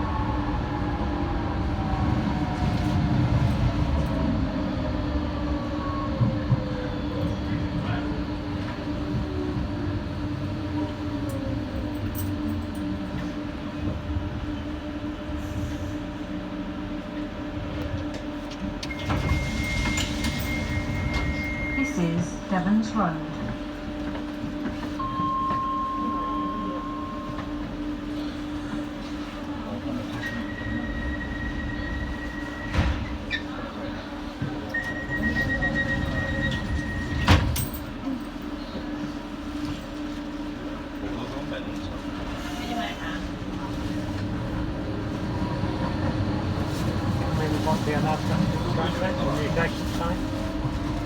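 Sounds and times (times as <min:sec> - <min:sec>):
low train hum: 0:00.0 - 0:51.0
door closing warning tone: 0:18.8 - 0:22.0, 0:25.0 - 0:27.5
wheels rumbling on track: 0:27.3 - 0:51.0.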